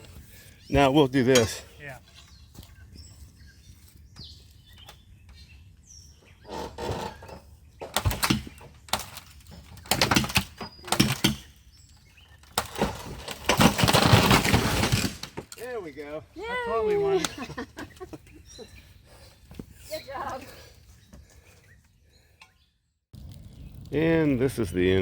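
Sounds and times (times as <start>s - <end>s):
wooden structure cracking and crashing: 7.8s - 11.6s, 12.3s - 15.7s.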